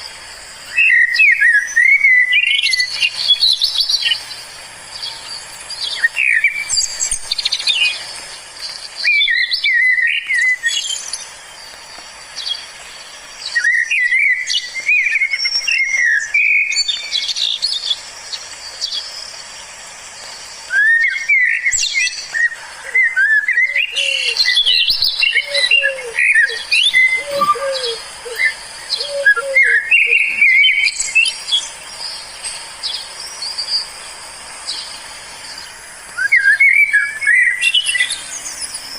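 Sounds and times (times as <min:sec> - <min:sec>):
low slurred bird notes: 0:00.0 - 0:38.9
songbirds chirping and whistling: 0:00.0 - 0:38.9.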